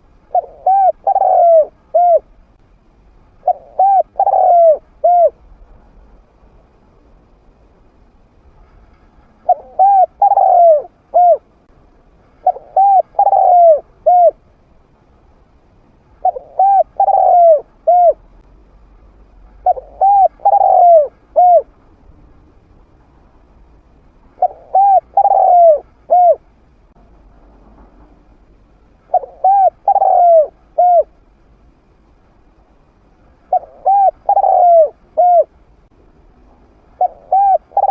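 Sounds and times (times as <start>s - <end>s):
dove cooing: 0.0s - 2.3s, 3.4s - 5.4s, 9.4s - 11.5s, 12.4s - 14.4s, 16.2s - 18.2s, 19.6s - 21.7s, 24.3s - 26.4s, 29.1s - 31.2s, 33.5s - 35.5s, 37.0s - 37.9s.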